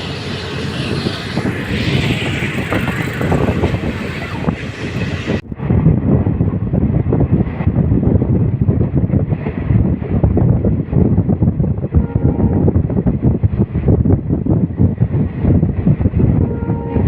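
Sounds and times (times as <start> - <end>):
train rumbling on rails: 0.0 - 17.0
wind buffeting microphone: 0.0 - 17.0.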